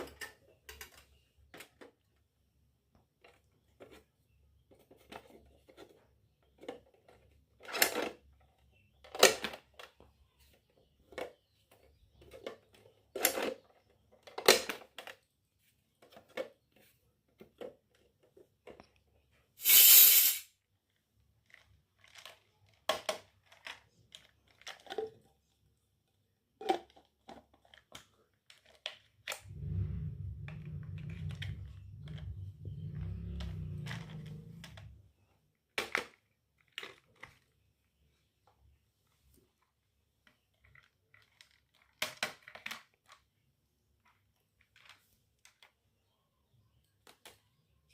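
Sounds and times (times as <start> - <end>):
steady low hum: 29.4 - 34.9.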